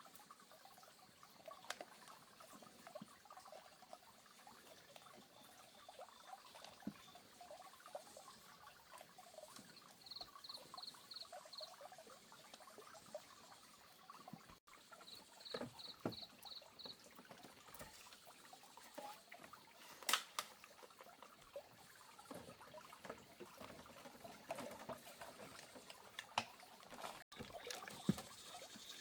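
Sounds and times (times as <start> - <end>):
frogs croaking: 4.8 - 14.2, 14.8 - 17.4.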